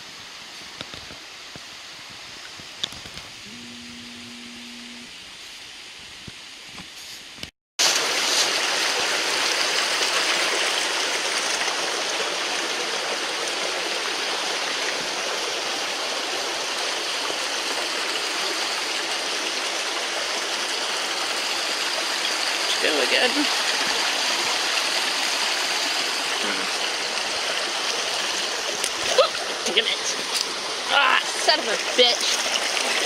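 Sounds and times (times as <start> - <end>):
stream water rushing: 7.8 - 33.0.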